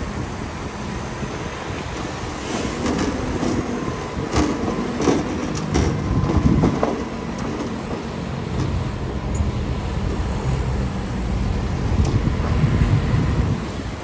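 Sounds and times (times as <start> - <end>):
diesel machinery rumbling: 0.0 - 14.0.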